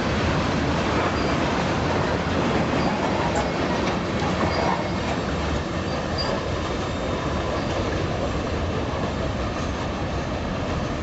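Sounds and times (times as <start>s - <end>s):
freight train wheels rumbling: 0.0s - 11.0s
high wheel squeals: 4.4s - 7.9s.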